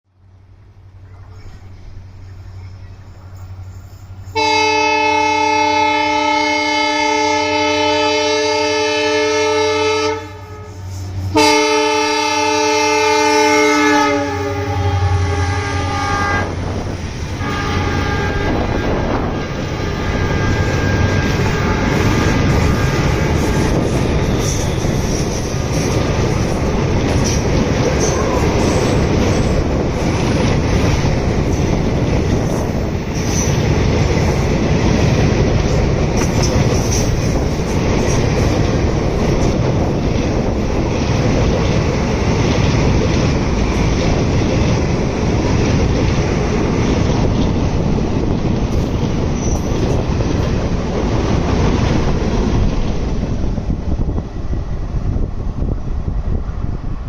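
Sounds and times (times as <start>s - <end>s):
train passing at speed: 0.1s - 57.0s
train horn: 4.3s - 16.6s, 17.4s - 25.3s, 28.0s - 29.5s.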